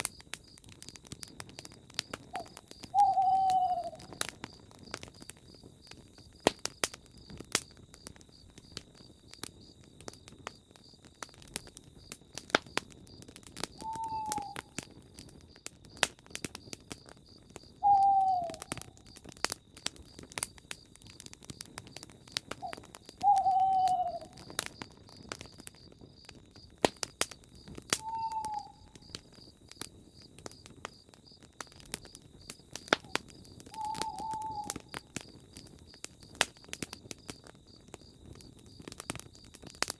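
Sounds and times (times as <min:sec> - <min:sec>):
insect trill: 0:00.0 - 0:15.6, 0:16.6 - 0:39.9
campfire crackling and popping: 0:00.0 - 0:39.9
owl hooting: 0:02.3 - 0:04.1, 0:13.8 - 0:14.8, 0:17.8 - 0:18.9, 0:22.6 - 0:24.4, 0:28.0 - 0:28.9, 0:33.7 - 0:34.8.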